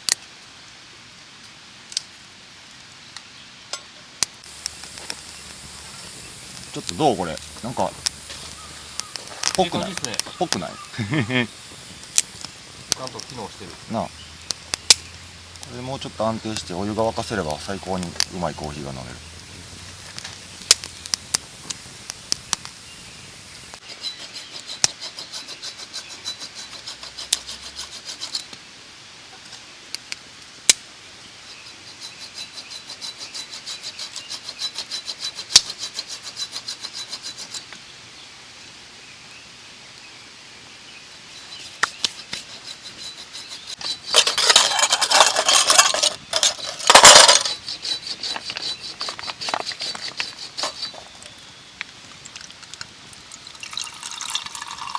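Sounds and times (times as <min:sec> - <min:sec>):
loud rustling: 0:41.4 - 0:51.3
metal and glass clinks: 0:44.1 - 0:47.6.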